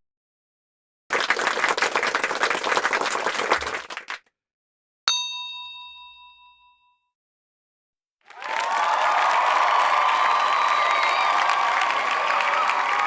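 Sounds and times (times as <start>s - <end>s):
applause: 1.1s - 4.3s, 8.2s - 13.0s
bell ding: 5.1s - 7.1s.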